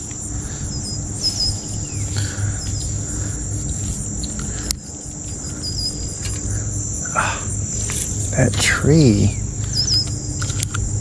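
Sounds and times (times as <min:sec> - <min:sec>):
bird chirps: 0:00.0 - 0:10.8
high-pitched insect drone: 0:00.0 - 0:11.0.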